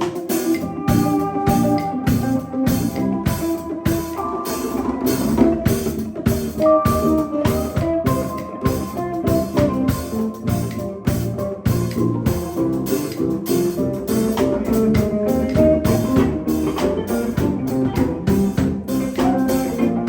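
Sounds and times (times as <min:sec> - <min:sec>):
drum kit beat: 0:00.0 - 0:20.0
held guitar notes: 0:00.0 - 0:20.0.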